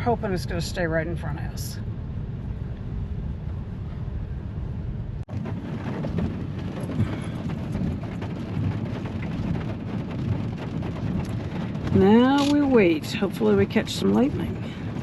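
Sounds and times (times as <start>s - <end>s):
rain pattering on car roof: 5.2s - 15.0s.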